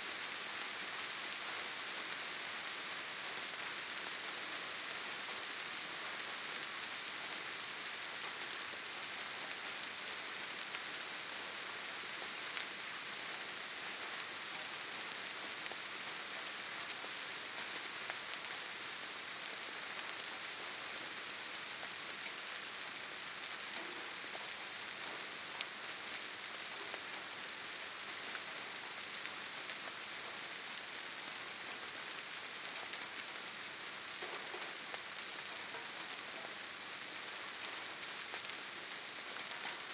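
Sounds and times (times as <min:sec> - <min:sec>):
steady rain hiss: 0:00.0 - 0:39.9
faint raindrop ticks: 0:23.6 - 0:27.4, 0:34.0 - 0:39.9.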